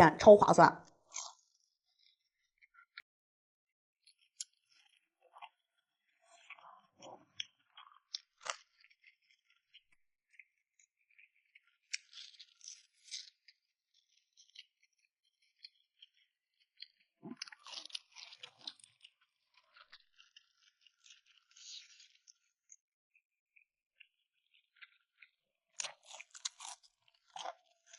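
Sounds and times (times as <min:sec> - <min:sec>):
crunchy bites and chewing: 0:01.1 - 0:01.4, 0:06.4 - 0:09.6, 0:17.3 - 0:22.2, 0:24.4 - 0:27.9.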